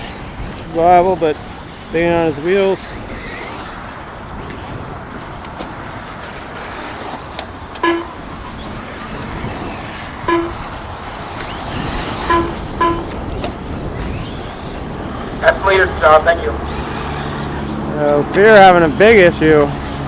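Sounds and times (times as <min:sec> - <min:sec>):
rc buggy motors humming: 0:00.0 - 0:20.0
short electronic beeps: 0:10.3 - 0:10.6, 0:12.2 - 0:13.1.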